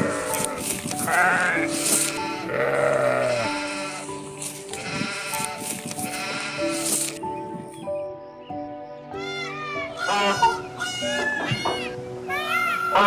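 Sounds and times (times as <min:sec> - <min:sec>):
animal bleating: 0:00.0 - 0:04.1, 0:04.7 - 0:07.1
background music with held notes: 0:00.0 - 0:13.0.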